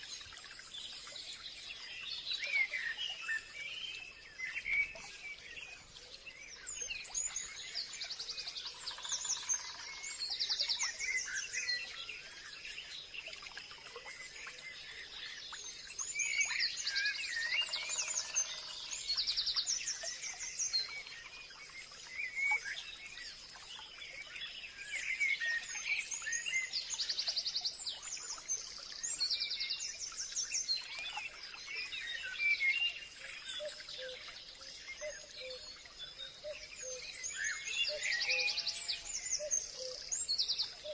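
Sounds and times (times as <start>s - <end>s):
birds chirping and trilling: 14.1s - 40.9s.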